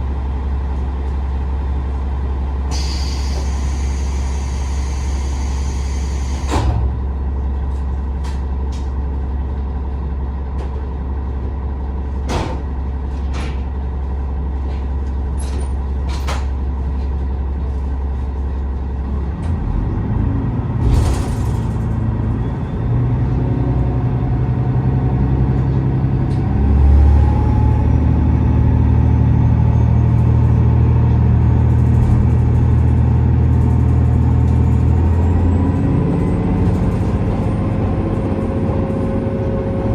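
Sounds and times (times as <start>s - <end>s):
short hiss of air: 2.7s - 6.6s.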